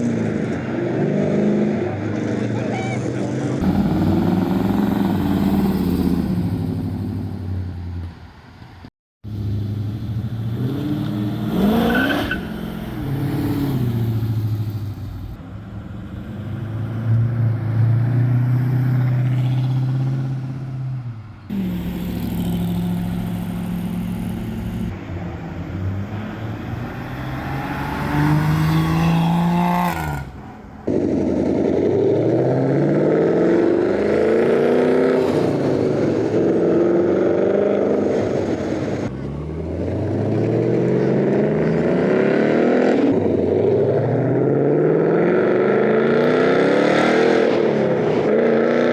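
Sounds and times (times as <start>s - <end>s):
car engines revving and accelerating: 0.0s - 48.9s.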